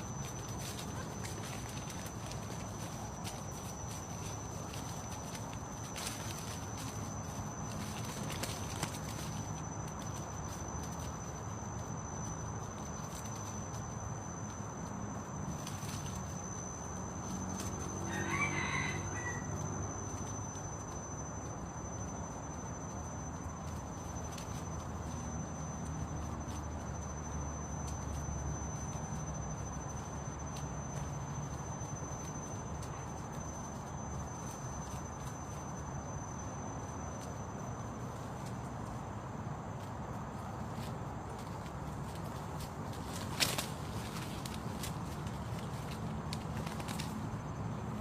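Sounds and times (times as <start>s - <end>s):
high-pitched insect drone: 0.0s - 48.0s
junglefowl crowing: 18.0s - 19.8s.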